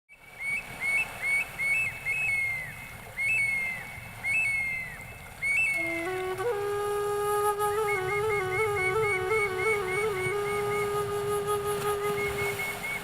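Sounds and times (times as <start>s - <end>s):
high whistled bird-like calls: 0.3s - 13.0s
flute melody: 3.2s - 13.0s.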